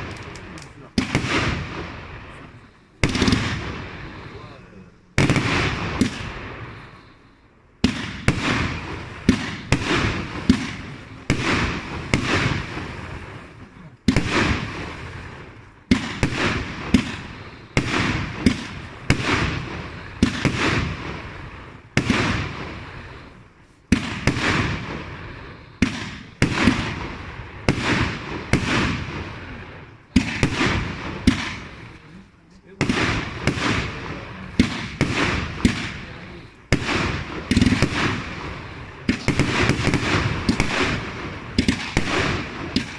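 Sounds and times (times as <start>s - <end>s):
firework bangs: 0.0s - 42.9s.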